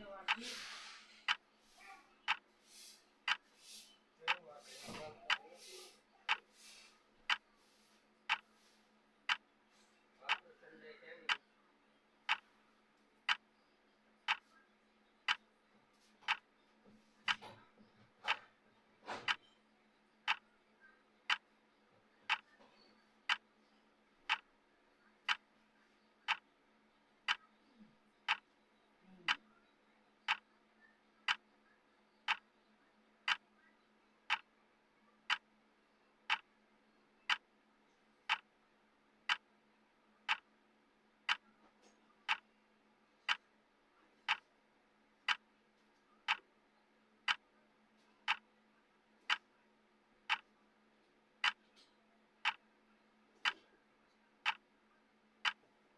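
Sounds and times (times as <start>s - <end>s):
clock ticking: 0.0s - 0.4s, 1.2s - 1.5s, 2.3s - 2.5s, 3.2s - 3.5s, 4.2s - 6.5s, 7.2s - 8.5s, 9.2s - 9.5s, 10.2s - 10.6s, 11.2s - 11.4s, 12.3s - 12.5s, 13.2s - 13.6s, 14.2s - 14.5s, 15.2s - 15.4s, 16.2s - 16.6s, 17.2s - 17.6s, 18.2s - 18.5s, 19.1s - 19.5s, 20.2s - 20.5s, 21.3s - 21.5s, 22.3s - 22.6s, 23.2s - 23.5s, 24.2s - 24.6s, 25.2s - 25.5s, 26.2s - 26.5s, 27.2s - 27.5s, 28.2s - 28.6s, 29.2s - 29.4s, 30.3s - 30.5s, 31.2s - 31.5s, 32.2s - 32.5s, 33.2s - 33.5s, 34.3s - 34.6s, 35.3s - 35.5s, 36.2s - 36.6s, 37.2s - 37.6s, 38.2s - 38.6s, 39.2s - 39.6s, 40.2s - 42.6s, 43.3s - 43.6s, 44.2s - 44.5s, 45.2s - 45.5s, 46.2s - 46.6s, 47.2s - 47.5s, 48.2s - 48.5s, 49.2s - 49.6s, 50.2s - 50.6s, 51.4s - 52.8s, 53.4s - 53.8s, 54.4s - 54.8s, 55.4s - 55.9s.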